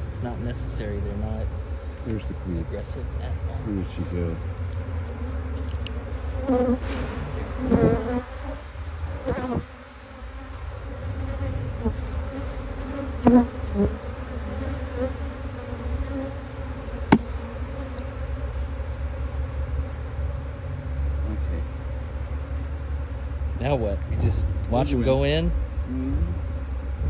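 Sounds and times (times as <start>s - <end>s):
bee swarm buzzing: 0.0s - 27.0s
bees flying past: 0.0s - 27.0s
sharp tap: 17.1s - 17.3s.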